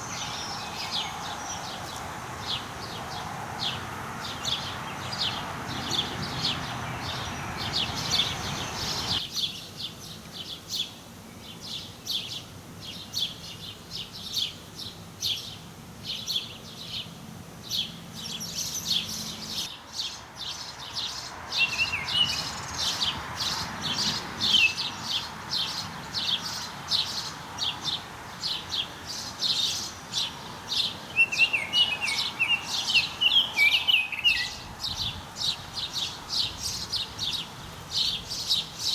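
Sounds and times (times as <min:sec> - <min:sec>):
birds chirping rapidly: 0:00.0 - 0:38.9
steady background hiss: 0:00.0 - 0:38.9.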